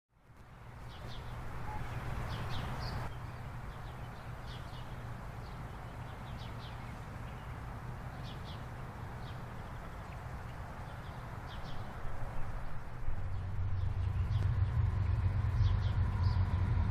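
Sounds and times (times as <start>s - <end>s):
small birds chirping: 0.8s - 16.8s
low rumble: 12.5s - 16.9s.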